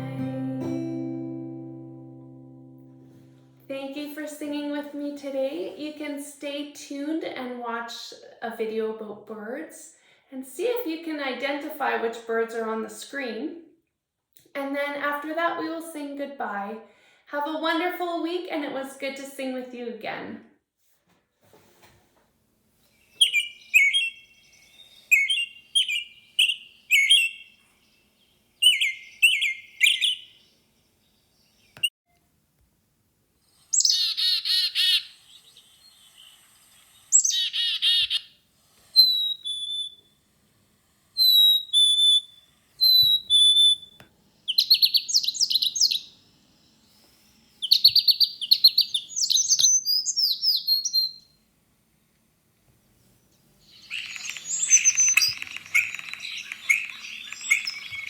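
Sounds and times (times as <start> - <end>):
birds chirping: 22.8 - 31.9, 33.7 - 40.1, 41.2 - 51.4, 53.0 - 58.0
fast trilled bird songs: 23.0 - 31.9, 33.7 - 38.3, 39.0 - 40.0, 41.2 - 46.2, 47.6 - 51.4, 53.6 - 58.0
buzzy rasping bird calls: 23.1 - 27.9, 28.6 - 30.5, 33.5 - 40.0, 41.2 - 46.2, 53.6 - 58.0.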